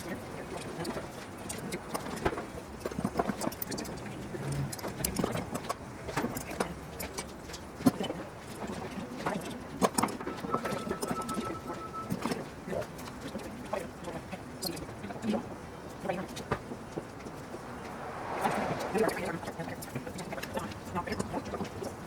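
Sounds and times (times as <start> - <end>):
faint steady high tone: 10.0 - 12.7.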